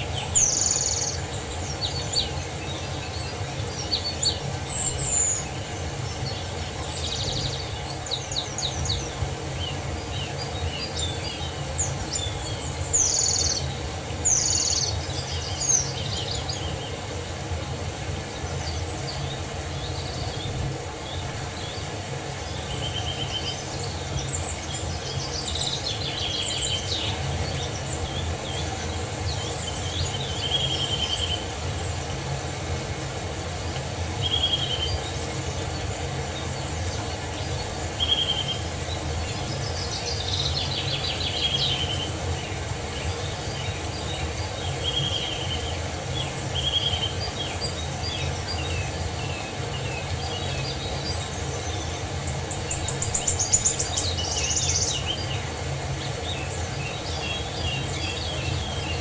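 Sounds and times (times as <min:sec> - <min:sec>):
songbirds calling and trilling: 0:00.0 - 0:59.0.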